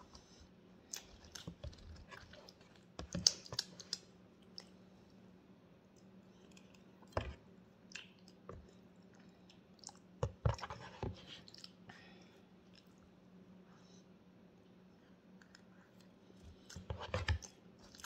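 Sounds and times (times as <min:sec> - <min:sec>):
faint low hum: 0:00.0 - 0:18.0
chewing with crunches: 0:00.9 - 0:05.2, 0:15.4 - 0:18.0.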